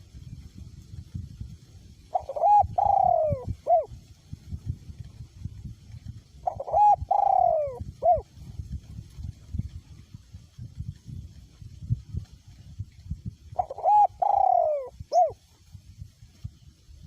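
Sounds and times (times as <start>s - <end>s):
wind rumbling on microphone: 0.0s - 17.0s
dove cooing: 2.1s - 4.0s, 6.4s - 8.3s, 13.6s - 15.4s.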